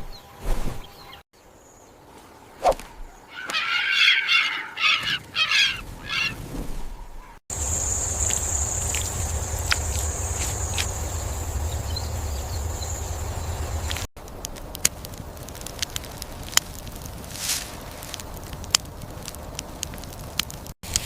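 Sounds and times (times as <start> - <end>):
harsh pitched animal calls: 3.2 - 6.4
high insect drone: 7.5 - 14.1
low rumble: 7.5 - 17.3.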